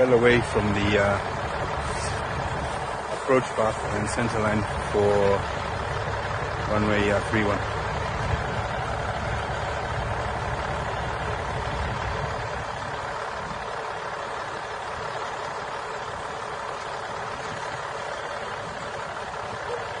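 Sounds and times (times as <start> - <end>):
large engine low rumble: 0.0 - 20.0.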